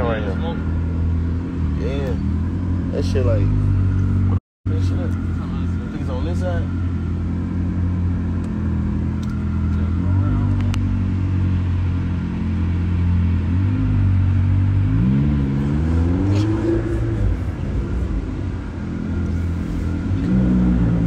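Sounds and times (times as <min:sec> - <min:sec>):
car engine drone from cabin: 0:00.0 - 0:21.0.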